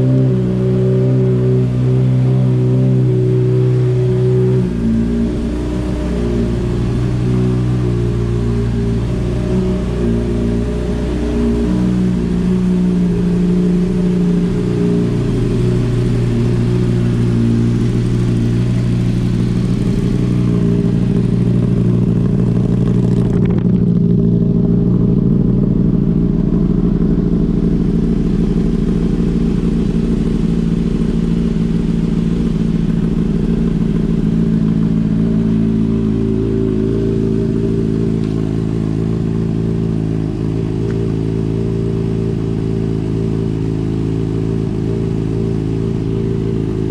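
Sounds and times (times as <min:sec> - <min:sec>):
motorcycle engine idling: 0:00.0 - 0:46.9.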